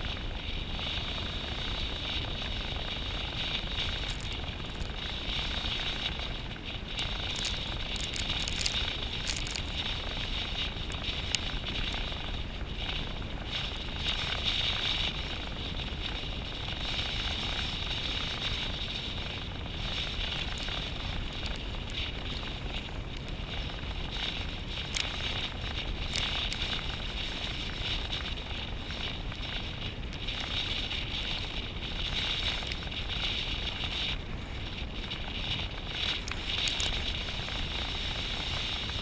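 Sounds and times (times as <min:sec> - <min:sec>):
rushing ride over rough ground: 0:00.0 - 0:39.0
wind on microphone: 0:00.0 - 0:39.0
clicks and rattles: 0:07.3 - 0:09.8.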